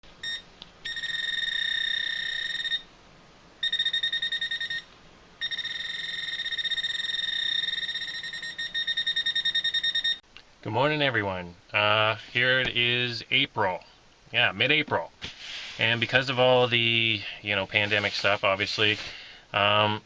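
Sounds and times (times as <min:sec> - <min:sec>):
metal detector high tone: 0:00.2 - 0:02.9, 0:03.6 - 0:10.2.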